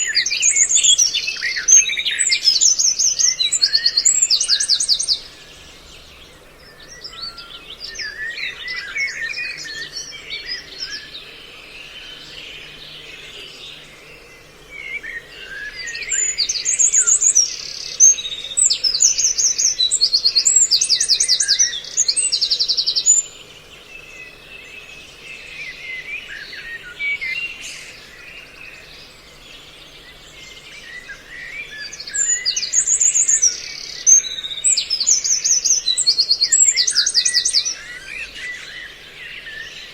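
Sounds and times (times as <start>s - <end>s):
songbird chirps and whistles: 0.0s - 39.9s
rapid high-pitched bird trills: 31.4s - 38.7s.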